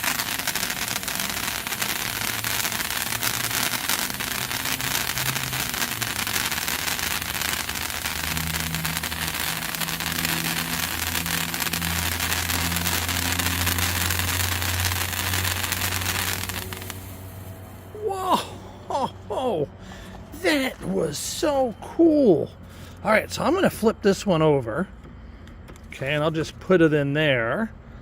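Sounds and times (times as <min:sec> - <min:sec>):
sparkler crackling fizz: 0:00.0 - 0:18.2
low hum: 0:05.9 - 0:23.0.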